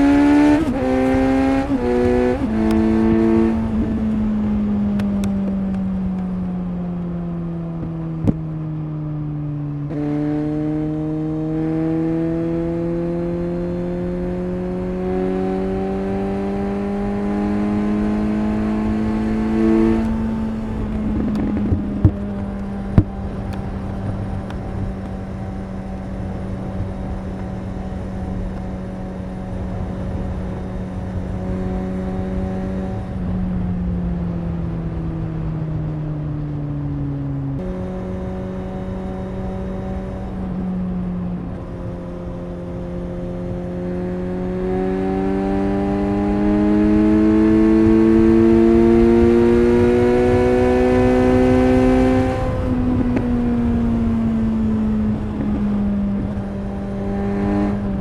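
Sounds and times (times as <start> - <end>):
motorcycle engine and exhaust: 0.0 - 58.0
wind and road noise: 0.0 - 58.0.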